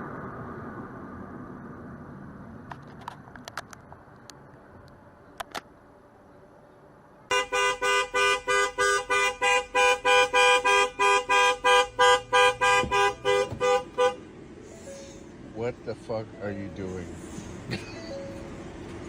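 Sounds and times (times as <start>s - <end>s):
low road noise: 0.0s - 19.0s
car horn short blasts: 7.3s - 14.2s.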